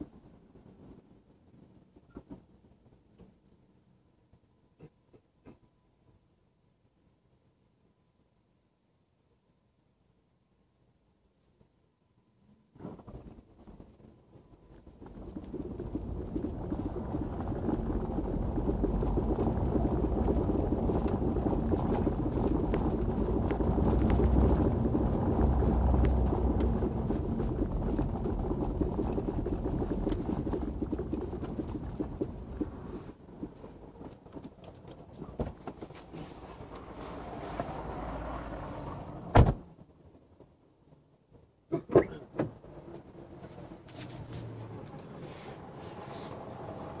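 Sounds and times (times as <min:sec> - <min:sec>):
tyres rumbling on cobblestones: 0:12.8 - 0:41.1
suspension knocking: 0:15.2 - 0:32.9
loud sharp thump: 0:39.3 - 0:39.6.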